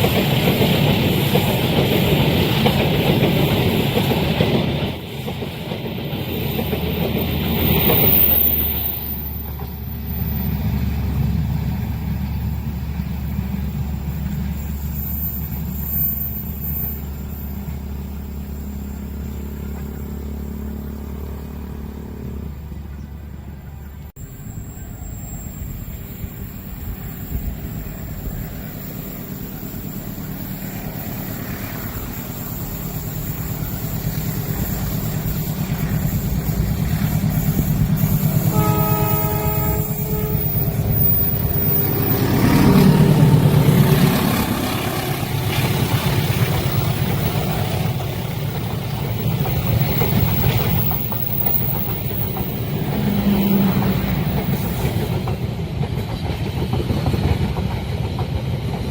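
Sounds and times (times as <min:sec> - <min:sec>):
locomotive passing: 0:00.0 - 0:58.9
train rumble: 0:00.0 - 0:58.9
train horn blast: 0:35.4 - 0:46.6.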